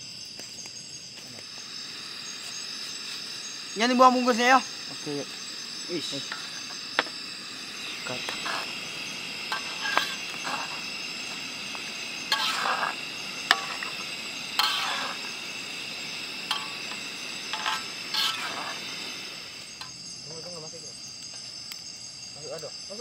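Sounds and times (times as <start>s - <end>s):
insects chirring: 0.0s - 23.0s
food frying in a pan: 1.2s - 20.2s
utensil scraping and clinking pan: 9.5s - 10.9s, 12.3s - 15.4s, 16.4s - 19.2s.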